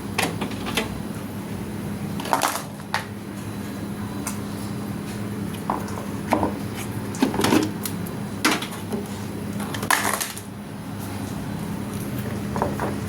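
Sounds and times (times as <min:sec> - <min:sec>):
steady low hum: 0:00.0 - 0:13.0
hard objects knocking and clattering: 0:12.2 - 0:13.0.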